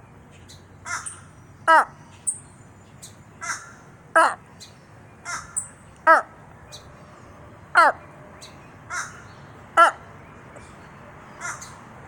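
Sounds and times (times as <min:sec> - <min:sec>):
raven cawing: 0:00.8 - 0:02.0, 0:03.4 - 0:04.4, 0:05.2 - 0:06.3, 0:07.7 - 0:08.0, 0:08.9 - 0:10.0, 0:11.3 - 0:11.8.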